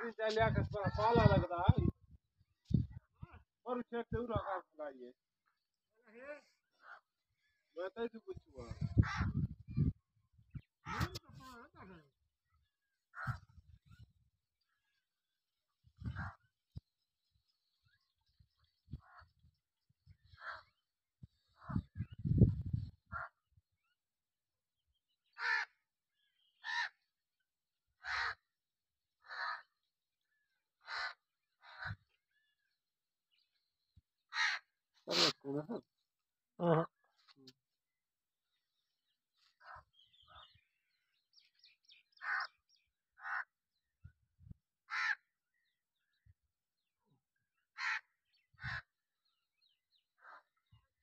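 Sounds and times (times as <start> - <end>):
harsh bird calls: 30.8 - 32.6, 34.2 - 35.9, 39.4 - 43.6, 47.8 - 50.8.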